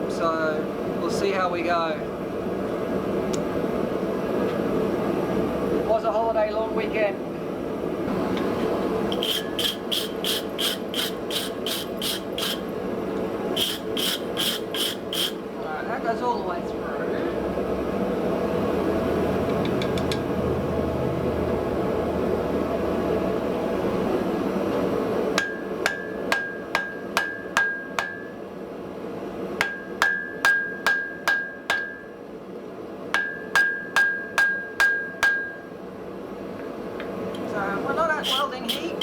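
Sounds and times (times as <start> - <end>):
gas forge roaring: 7.2 - 30.4
hammer ringing on anvil: 25.4 - 28.4, 29.6 - 32.2, 33.2 - 35.7.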